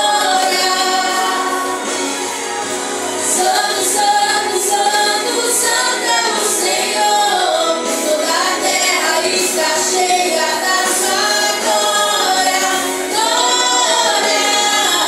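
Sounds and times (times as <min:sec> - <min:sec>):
group singing a worship song: 0:00.0 - 0:15.0.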